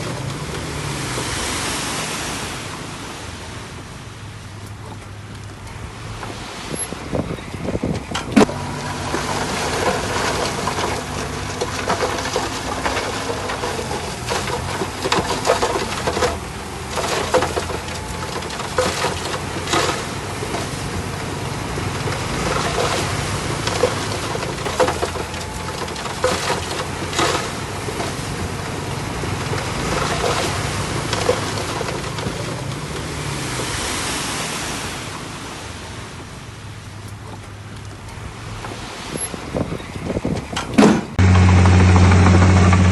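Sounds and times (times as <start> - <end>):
bulldozer diesel engine running: 8.4 - 33.4, 41.2 - 42.9.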